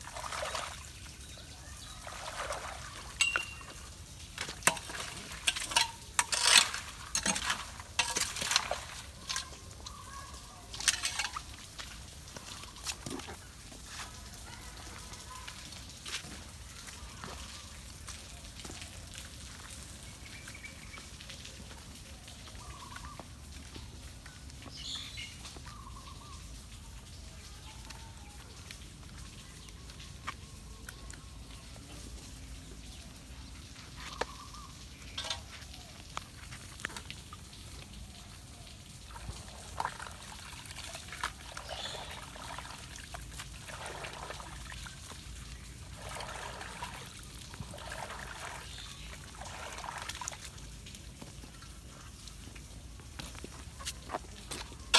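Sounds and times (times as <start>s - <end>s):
water gurgling through culvert: 0.0s - 14.4s, 34.9s - 54.9s
water splashing: 0.0s - 16.5s, 33.3s - 52.5s.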